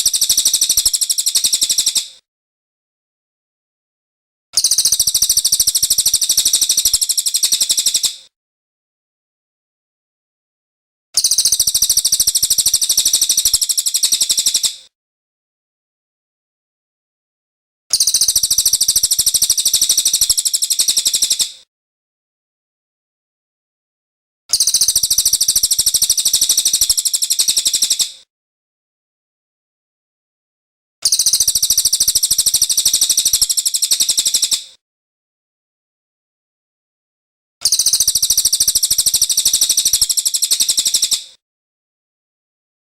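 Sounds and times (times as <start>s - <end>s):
songbird rattling trill: 0.0s - 2.0s, 4.6s - 8.1s, 11.2s - 14.7s, 17.9s - 21.4s, 24.5s - 28.1s, 31.0s - 34.6s, 37.6s - 41.2s.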